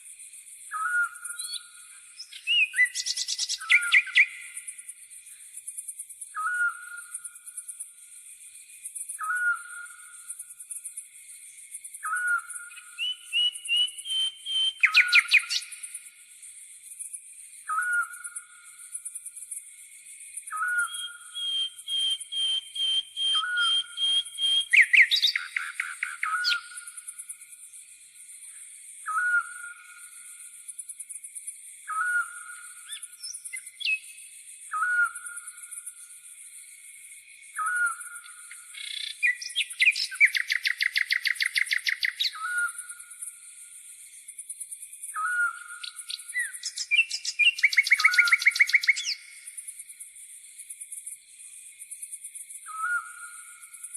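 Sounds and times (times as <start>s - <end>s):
insect chirring: 0.0s - 53.9s
songbirds trilling: 0.7s - 4.6s, 12.0s - 15.8s, 20.5s - 27.1s, 37.4s - 43.0s, 45.1s - 49.4s.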